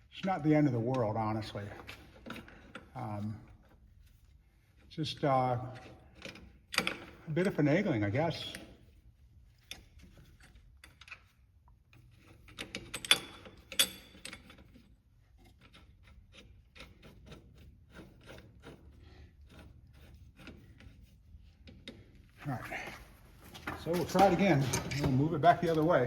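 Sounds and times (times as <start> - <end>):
metal tools clinking: 23.7 - 26.0.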